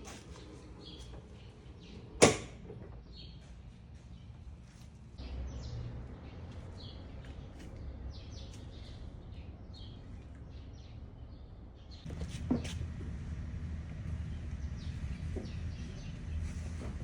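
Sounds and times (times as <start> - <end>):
small birds chirping: 0.2 - 2.2, 2.9 - 12.2, 14.0 - 17.0
steady low rumble: 12.0 - 17.0.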